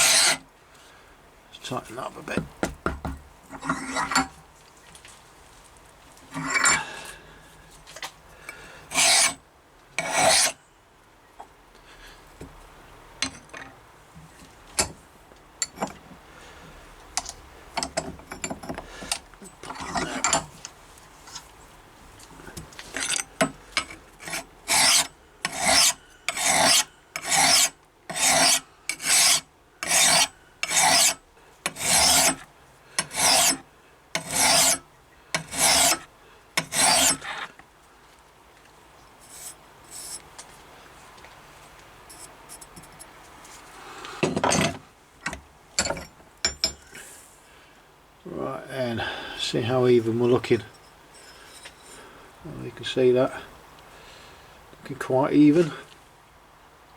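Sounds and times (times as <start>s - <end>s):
file rasping on steel blade: 0.0s - 0.4s, 8.9s - 9.4s, 10.0s - 10.6s, 24.2s - 33.6s, 34.2s - 34.8s, 35.4s - 37.5s, 39.2s - 40.2s.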